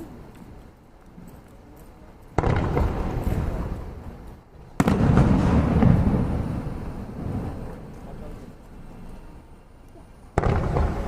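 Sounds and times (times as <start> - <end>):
fireworks bursting with rumbling echo: 2.2 - 9.4, 10.1 - 11.0.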